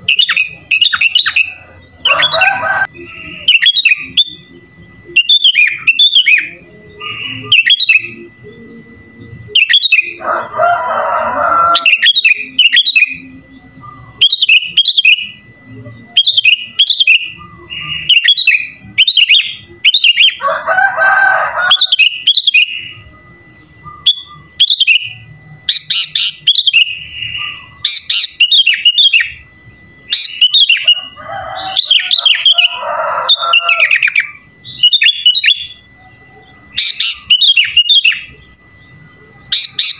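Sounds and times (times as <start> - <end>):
bird chirping song: 0.0 - 20.6, 21.3 - 39.9
faint steady high tone: 0.0 - 39.9.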